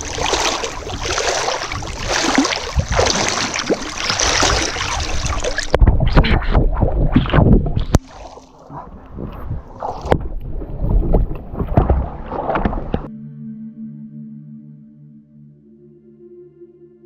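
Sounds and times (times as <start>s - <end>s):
wind buffeting microphone: 0.0s - 8.0s, 8.7s - 13.1s
water splashing and sloshing: 0.0s - 13.1s.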